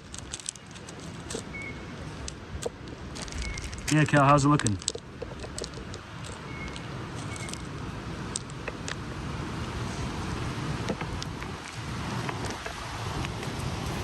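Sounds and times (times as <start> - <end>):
low background rumble: 13.0 - 14.0.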